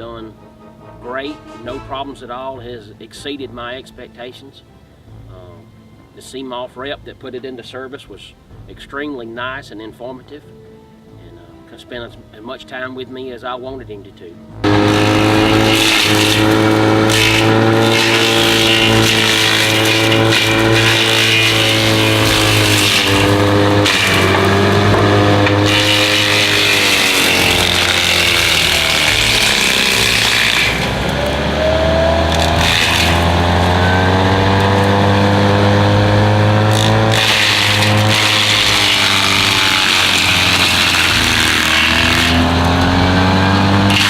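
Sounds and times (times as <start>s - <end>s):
excavator mulcher engine whine: 14.6s - 44.0s.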